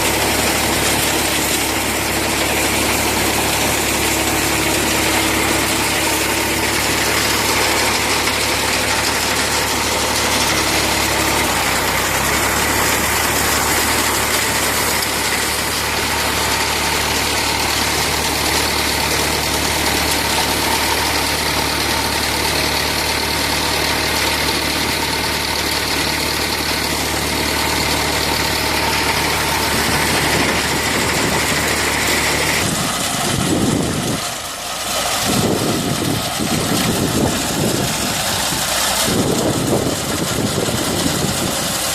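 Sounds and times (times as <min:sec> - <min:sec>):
tractor engine running: 0:00.0 - 0:41.9.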